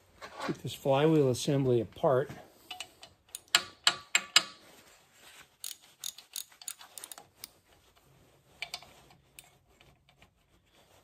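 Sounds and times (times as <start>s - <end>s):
hand tools clicking on metal: 2.7s - 4.6s, 5.6s - 7.5s.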